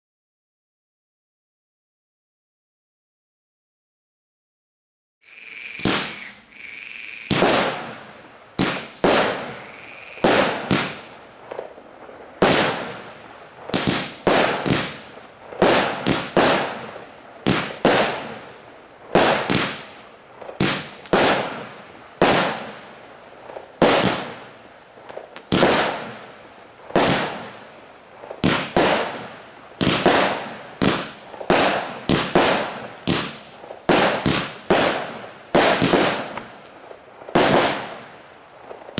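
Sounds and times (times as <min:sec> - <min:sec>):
thin steady whistle: 0:05.3 - 0:07.4
firework shots with crackle: 0:05.3 - 0:38.9.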